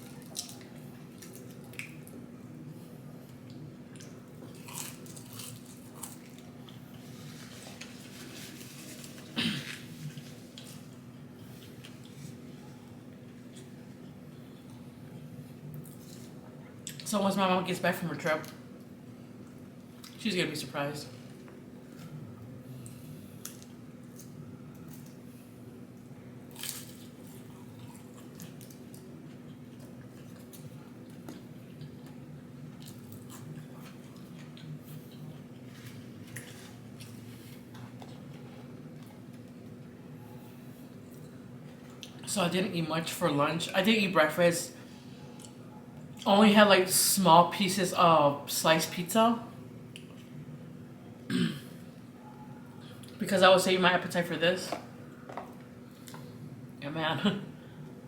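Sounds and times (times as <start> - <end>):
person chewing and biting food: 3.9 - 7.9, 26.5 - 32.2.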